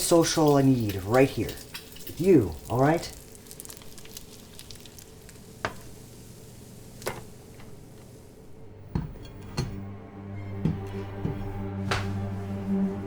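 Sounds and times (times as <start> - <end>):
food sizzling in a frying pan: 0.0 - 9.2.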